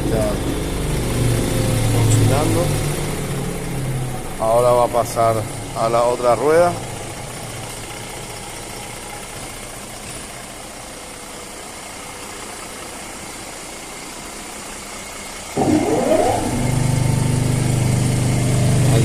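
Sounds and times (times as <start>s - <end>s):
steady mechanical hum: 0.0s - 19.0s
motor whining as it spins up: 15.1s - 19.0s.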